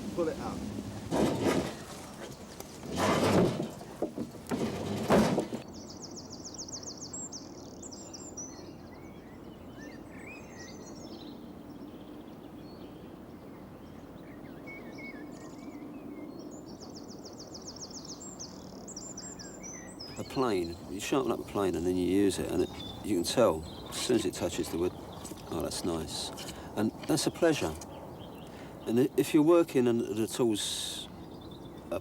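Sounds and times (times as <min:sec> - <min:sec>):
bird chirps: 0:14.3 - 0:29.2.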